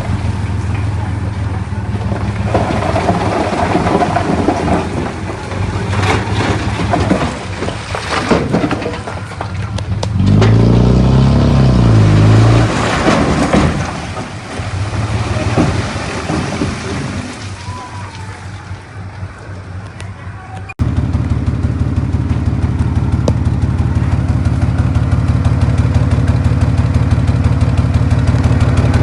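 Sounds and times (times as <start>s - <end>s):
diesel earthmoving engine: 0.0s - 29.0s
stones knocking and clattering: 2.0s - 10.6s.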